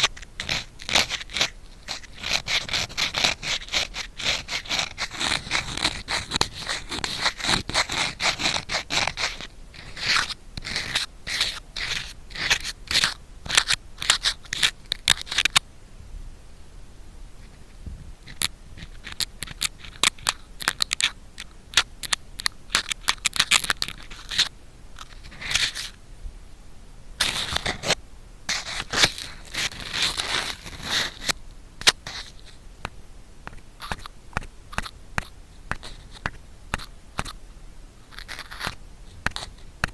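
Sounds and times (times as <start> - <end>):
ear pick scratching in microphone: 0.0 - 15.6, 17.4 - 26.0, 27.2 - 32.6, 38.0 - 39.9.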